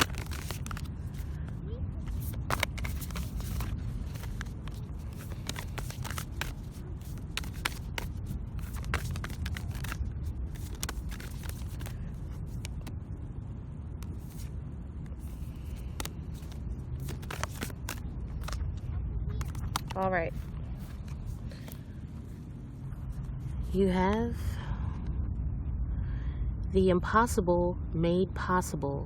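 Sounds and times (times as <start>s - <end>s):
cards shuffling and clicking: 0.0s - 1.4s, 2.0s - 13.0s, 14.0s - 18.6s, 19.4s - 21.9s
low background rumble: 0.0s - 29.0s.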